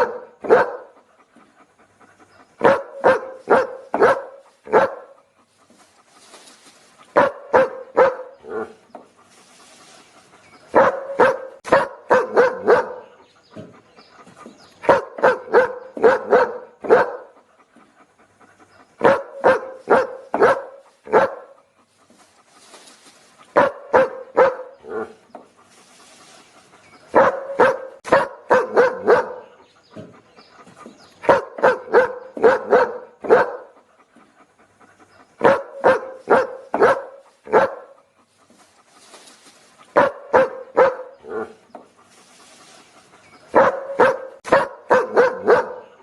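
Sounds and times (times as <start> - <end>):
dog barking: 0.0 - 1.0, 2.6 - 5.2, 7.1 - 8.8, 10.7 - 13.2, 14.8 - 17.4, 19.0 - 21.6, 23.5 - 25.2, 27.1 - 30.1, 31.2 - 33.8, 35.4 - 38.0, 39.9 - 41.6, 43.5 - 46.0
soft breathy hiss: 4.4 - 7.2, 9.1 - 10.6, 21.7 - 23.6, 25.5 - 27.0, 37.2 - 40.0, 41.9 - 43.4.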